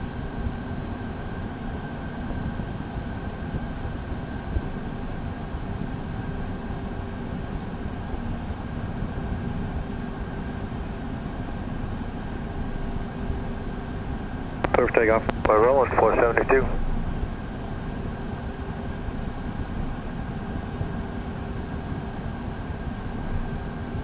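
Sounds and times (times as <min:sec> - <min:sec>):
jet engine low noise: 0:00.0 - 0:24.0
high engine whine: 0:14.0 - 0:18.0.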